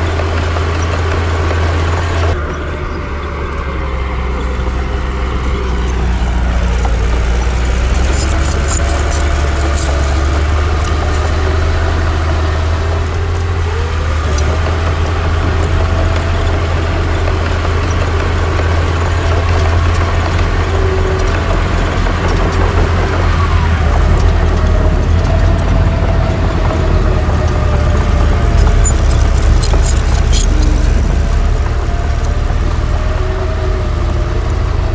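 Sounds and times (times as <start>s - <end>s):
bulldozer diesel engine rumble: 0.0s - 34.9s
metallic clicks: 4.4s - 11.6s, 27.4s - 33.0s.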